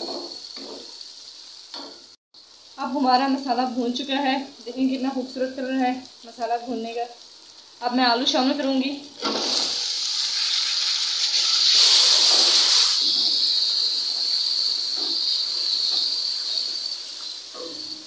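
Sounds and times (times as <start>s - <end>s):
potatoes sizzling in hot oil: 0.0s - 18.0s.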